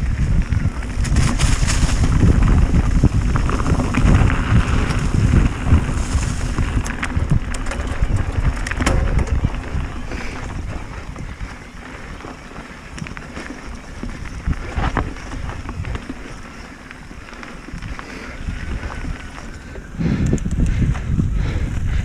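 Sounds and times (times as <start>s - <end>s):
tyre rumble: 0.0s - 20.2s
wind buffeting microphone: 0.0s - 22.0s
bike rattling knocks: 0.9s - 16.4s.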